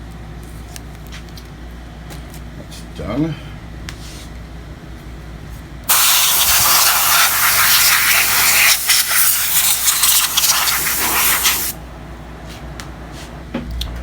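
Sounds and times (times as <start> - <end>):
compressed air hissing: 5.9 - 11.8.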